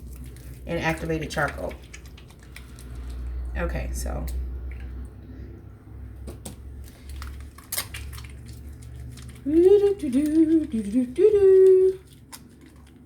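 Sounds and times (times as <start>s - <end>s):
woman humming: 9.5s - 12.0s.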